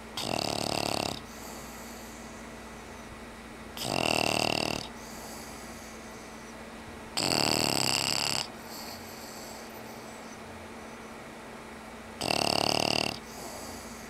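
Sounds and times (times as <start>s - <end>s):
dog snoring: 0.0s - 2.3s, 3.8s - 6.5s, 7.2s - 10.4s, 12.2s - 14.0s.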